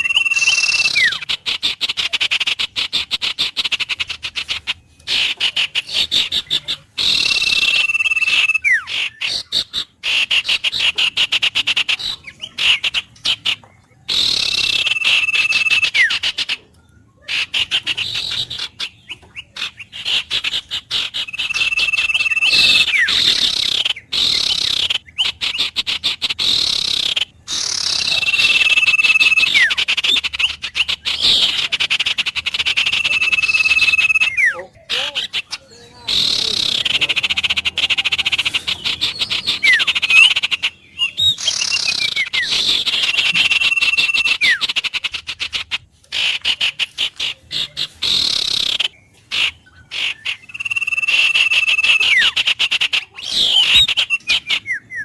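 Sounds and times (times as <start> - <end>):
bird whistle with falling slide: 0.0 - 1.3.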